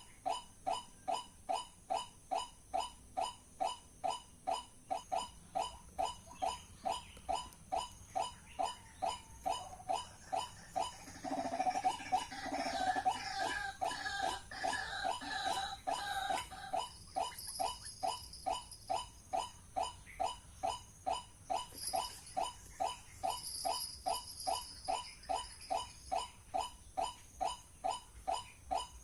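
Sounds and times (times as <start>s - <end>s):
waterhen calling: 11.0s - 16.8s.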